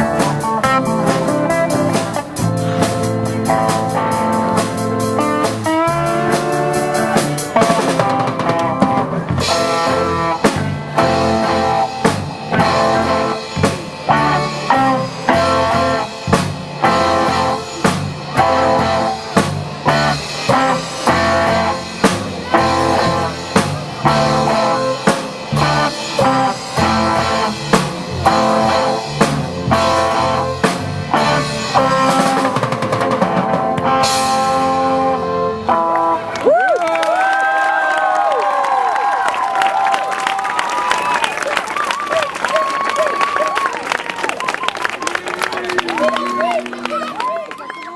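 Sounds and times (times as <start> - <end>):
drum kit beat: 0.0 - 35.9
electric guitar slide: 0.0 - 36.5
live rock band playing: 0.0 - 36.6, 43.6 - 47.9.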